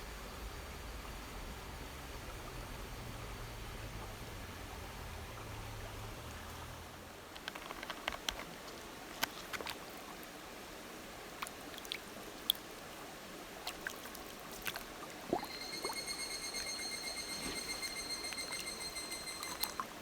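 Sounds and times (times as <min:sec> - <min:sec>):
high pulsing tone: 0:15.3 - 0:19.9.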